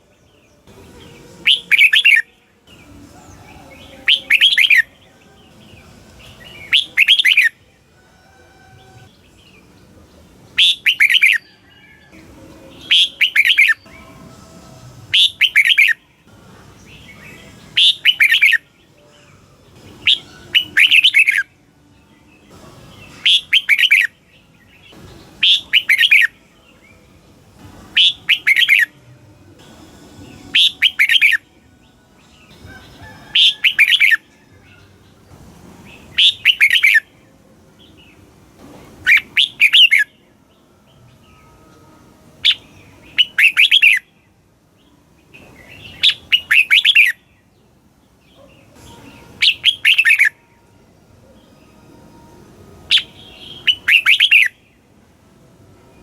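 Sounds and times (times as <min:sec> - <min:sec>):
bird singing warbling phrases: 0:00.0 - 0:07.7, 0:08.7 - 0:14.2, 0:15.1 - 0:27.1, 0:27.9 - 0:29.0, 0:30.2 - 0:35.2, 0:35.9 - 0:38.2, 0:39.0 - 0:41.5, 0:42.4 - 0:50.6, 0:52.9 - 0:54.9.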